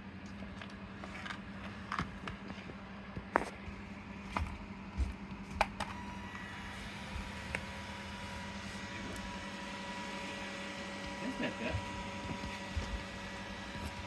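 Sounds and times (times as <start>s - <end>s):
low hum: 0.0s - 14.0s
small electric motor whining: 5.8s - 14.0s.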